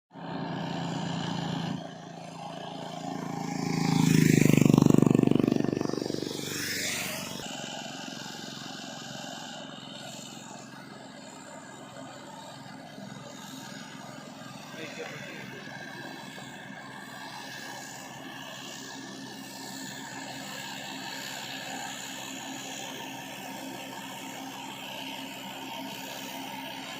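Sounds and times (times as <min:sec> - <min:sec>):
tractor engine passing: 0:00.2 - 0:07.8.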